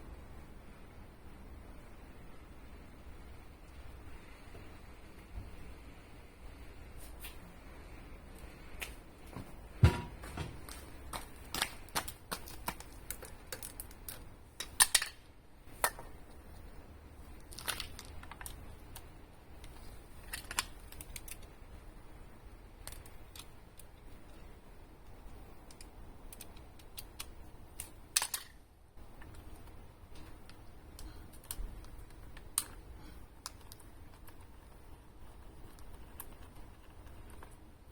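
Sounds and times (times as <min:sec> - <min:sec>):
clatter of small parts: 0:25.7 - 0:28.6.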